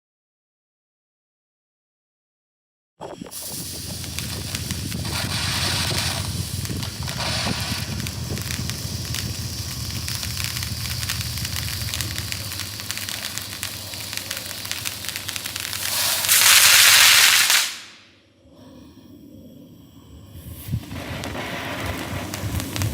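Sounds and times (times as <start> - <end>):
firework crackling: 3.3 - 18.1, 20.4 - 22.9
firework sparks hissing: 3.3 - 18.1, 20.3 - 22.9.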